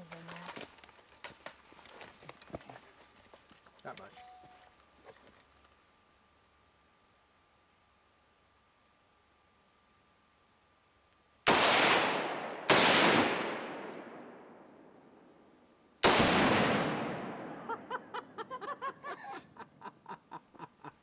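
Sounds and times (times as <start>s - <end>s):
loud bangs with echo: 11.5s - 14.3s, 16.0s - 17.8s.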